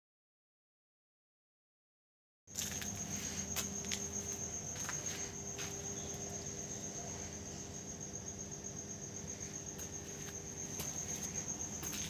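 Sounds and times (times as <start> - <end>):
crickets chirping: 2.5 - 12.0.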